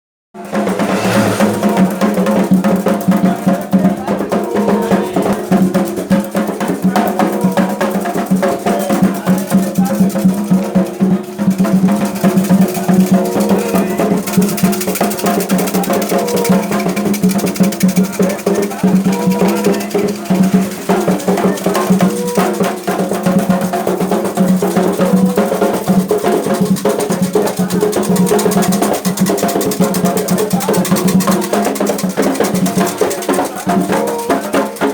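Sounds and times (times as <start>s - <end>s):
hand drums playing fast rhythm: 0.4s - 34.9s
pitched singing: 33.5s - 34.9s.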